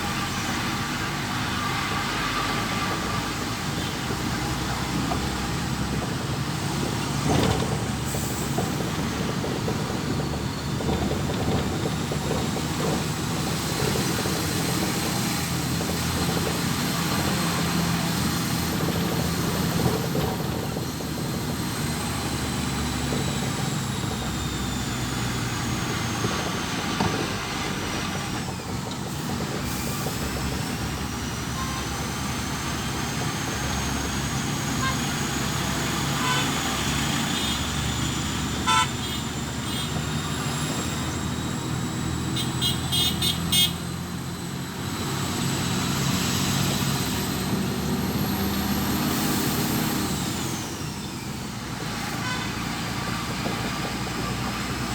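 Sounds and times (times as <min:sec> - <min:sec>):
road traffic: 0:00.0 - 0:54.9
vehicle engine running: 0:03.8 - 0:54.9
car horn toots: 0:34.8 - 0:35.1, 0:36.0 - 0:37.8, 0:38.6 - 0:40.1, 0:42.3 - 0:43.9, 0:52.2 - 0:52.6.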